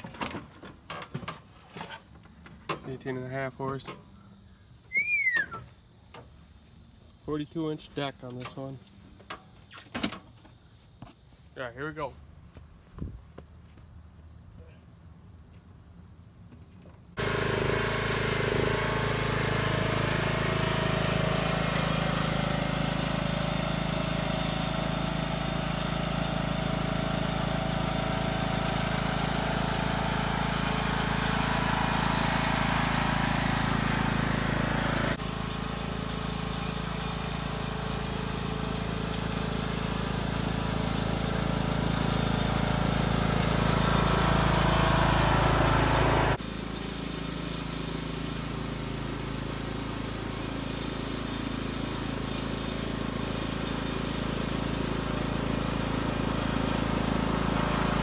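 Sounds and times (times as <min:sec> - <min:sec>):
riding mower engine running: 0:17.2 - 0:58.0.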